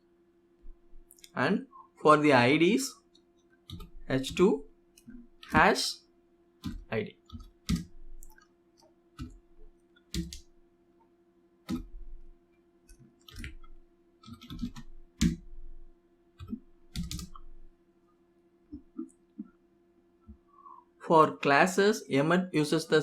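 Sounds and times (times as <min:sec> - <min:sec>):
faint steady hum: 0:00.0 - 0:23.0
keyboard keystrokes: 0:03.7 - 0:04.5, 0:06.6 - 0:08.4, 0:09.2 - 0:09.4, 0:10.1 - 0:10.5, 0:11.7 - 0:12.0, 0:13.2 - 0:15.5, 0:16.4 - 0:17.5.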